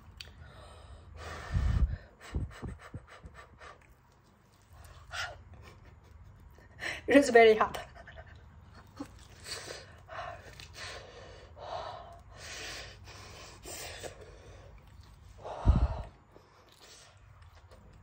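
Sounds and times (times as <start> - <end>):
person huffing breaths: 15.4 - 16.3.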